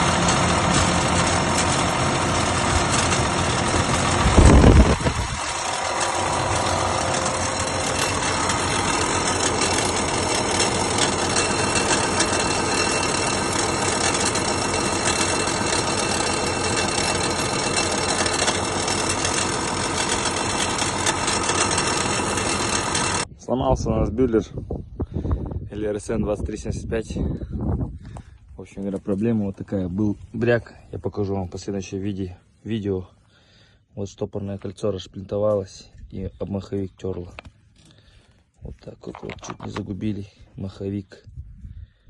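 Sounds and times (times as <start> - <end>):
tractor diesel engine knocking: 0.0 - 23.3.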